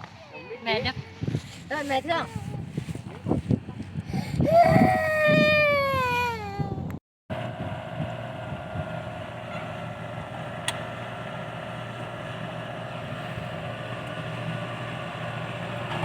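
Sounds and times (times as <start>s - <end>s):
engine humming: 7.3s - 16.0s.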